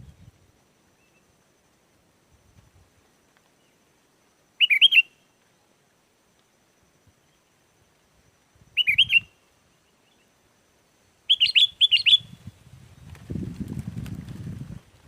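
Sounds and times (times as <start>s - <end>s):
bulbul singing: 4.6s - 5.2s, 8.8s - 9.4s, 11.3s - 12.4s.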